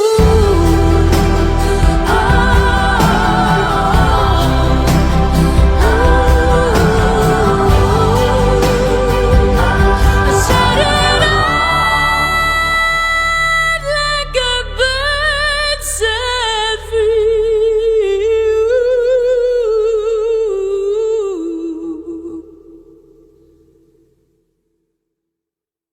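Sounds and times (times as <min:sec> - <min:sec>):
woman singing with vibrato: 0:00.0 - 0:23.1
soft low accompaniment: 0:00.2 - 0:15.2.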